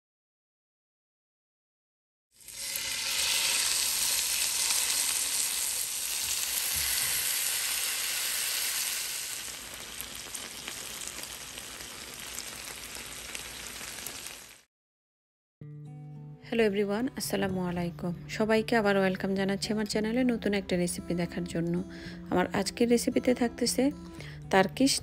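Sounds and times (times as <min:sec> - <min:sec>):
chicken sizzling in oil: 0:02.4 - 0:14.7.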